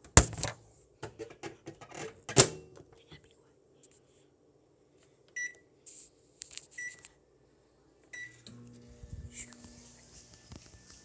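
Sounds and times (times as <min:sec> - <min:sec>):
microwave keypad beeping: 0:05.4 - 0:05.6, 0:08.1 - 0:08.4
microwave humming: 0:08.2 - 0:11.0.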